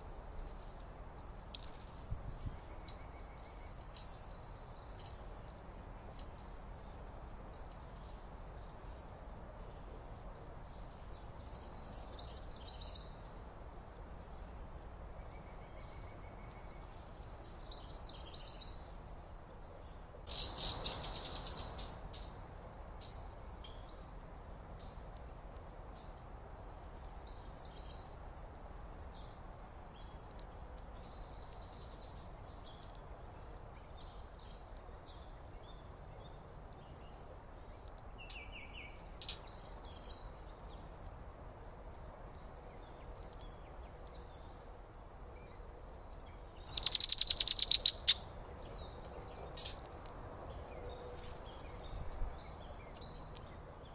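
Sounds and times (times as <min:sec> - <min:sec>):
low background hiss: 0:00.0 - 0:53.9
faint bird chirps: 0:20.3 - 0:22.4, 0:45.4 - 0:49.0
bird trilled call: 0:46.6 - 0:48.4.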